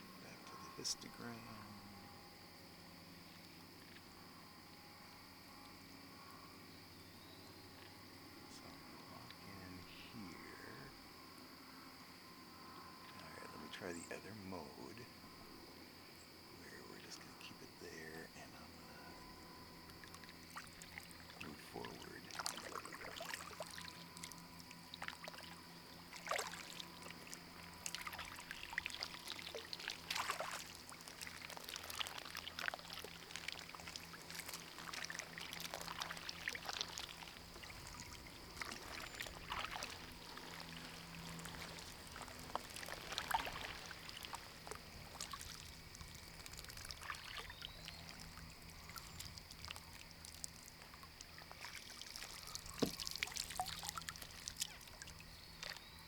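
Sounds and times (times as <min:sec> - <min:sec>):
paddle splashing water: 0:16.6 - 0:56.0
water dripping and trickling: 0:19.8 - 0:55.8.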